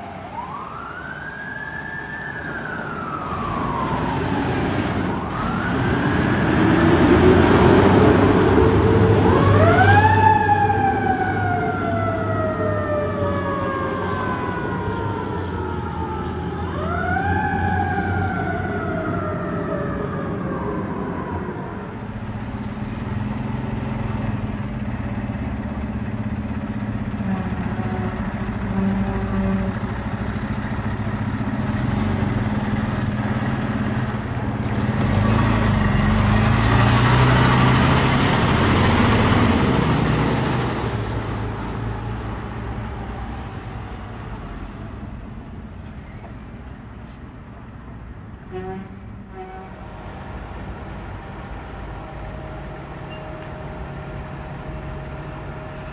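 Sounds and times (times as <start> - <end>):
fire truck diesel engine passing: 0.0 - 55.9.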